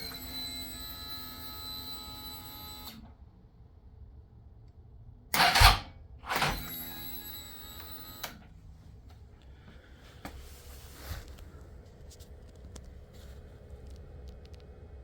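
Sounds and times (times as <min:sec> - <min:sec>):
motorcycle starter bursts: 0:05.4 - 0:06.8
starter motor whine: 0:05.4 - 0:08.4.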